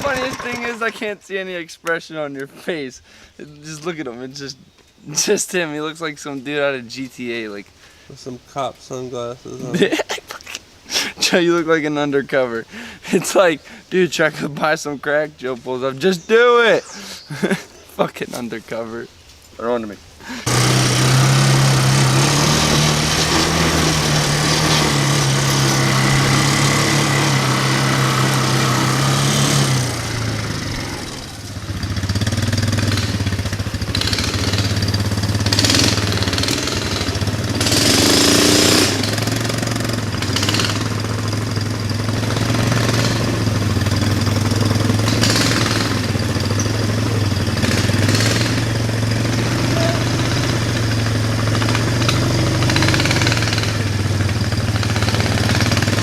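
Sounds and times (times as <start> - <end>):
mini bike engine running: 0.0 - 1.1, 20.4 - 56.0.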